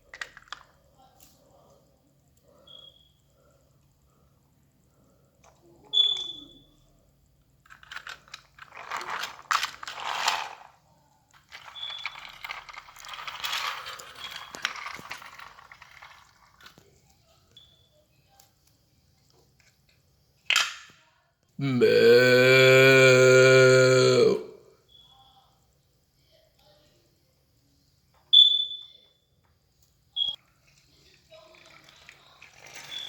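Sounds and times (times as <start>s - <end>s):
toy clatter: 7.6s - 17.0s, 30.4s - 33.0s
toy vehicles scraping on plastic: 7.7s - 10.8s, 11.4s - 16.8s, 31.4s - 33.0s.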